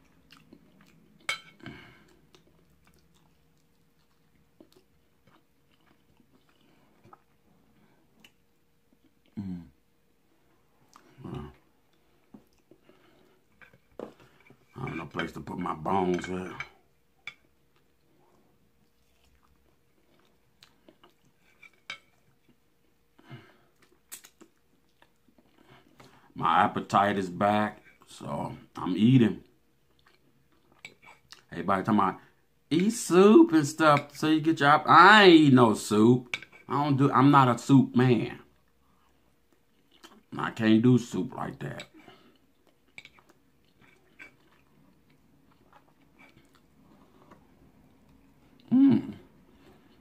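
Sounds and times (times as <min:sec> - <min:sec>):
quiet chewing and mouth noises: 0:00.0 - 0:26.4, 0:27.7 - 0:31.6, 0:38.4 - 0:40.4, 0:41.4 - 0:50.0
mouth clicks and smacks: 0:23.8 - 0:25.1.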